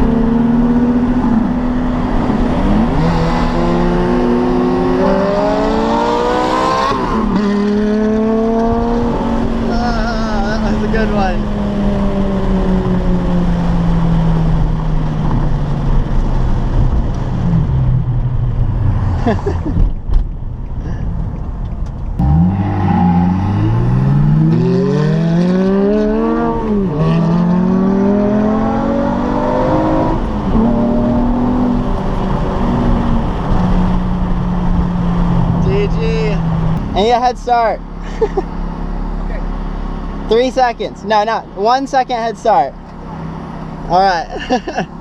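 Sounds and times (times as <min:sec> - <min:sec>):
sports car engine accelerating: 0:00.0 - 0:20.6, 0:21.4 - 0:40.6, 0:42.7 - 0:45.0.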